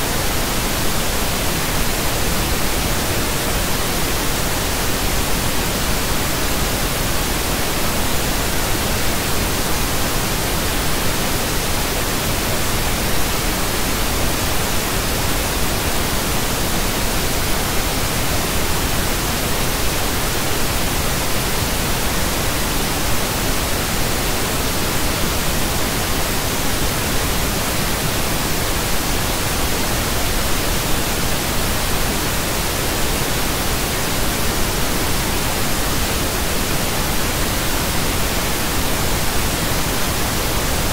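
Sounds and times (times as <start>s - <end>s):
pink noise hiss: 0.0s - 40.9s.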